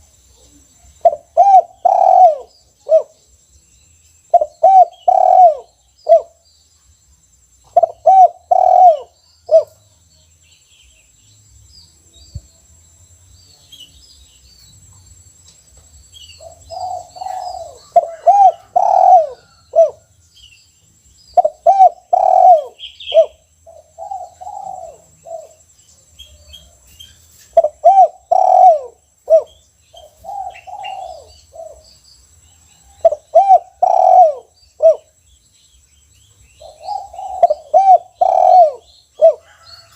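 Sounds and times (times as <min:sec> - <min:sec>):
dove cooing: 0:01.0 - 0:03.2, 0:04.3 - 0:06.4, 0:07.7 - 0:09.8, 0:16.4 - 0:20.1, 0:21.4 - 0:25.6, 0:27.5 - 0:31.8, 0:32.9 - 0:35.2, 0:36.6 - 0:39.9.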